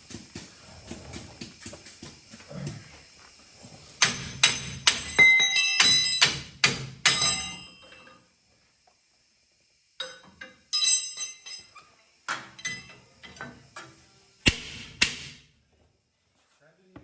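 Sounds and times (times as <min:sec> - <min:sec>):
metal-on-metal strikes and clinks: 0:04.0 - 0:08.2, 0:10.0 - 0:13.6.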